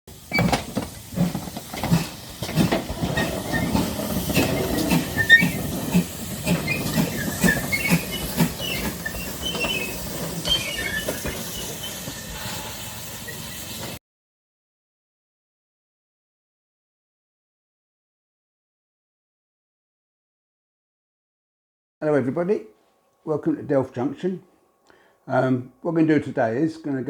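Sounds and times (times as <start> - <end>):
steam hiss: 0.1 - 14.0
steam train chuffing: 0.1 - 14.0.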